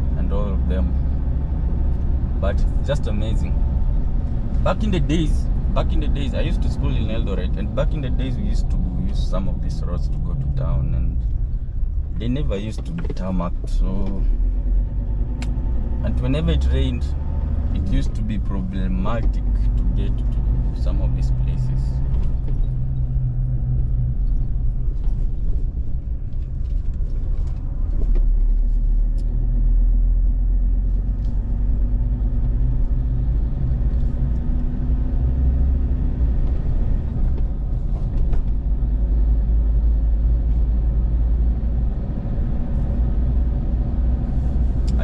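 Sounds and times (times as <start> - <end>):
car driving on road: 0.0 - 45.0.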